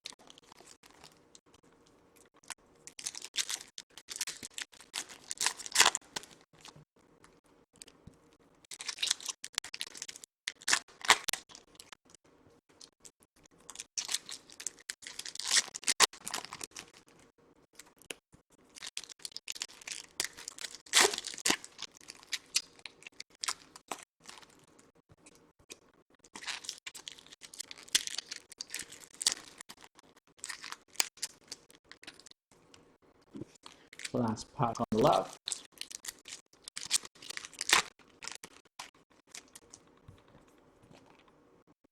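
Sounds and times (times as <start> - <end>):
foil wrappers tearing and crinkling: 3.0 - 6.4, 14.0 - 17.1, 18.8 - 24.6, 26.4 - 32.4, 35.4 - 39.7.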